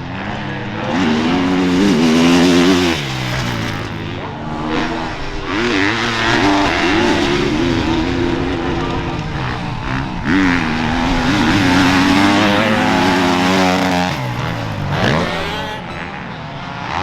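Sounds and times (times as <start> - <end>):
motocross engines revving: 0.0 - 17.0.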